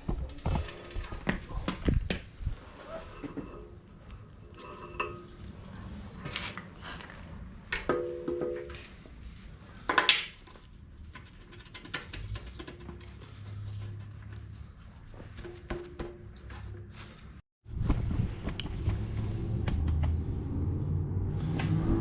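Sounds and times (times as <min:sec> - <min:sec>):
metal tools clinking and knocking: 0:03.1 - 0:05.9.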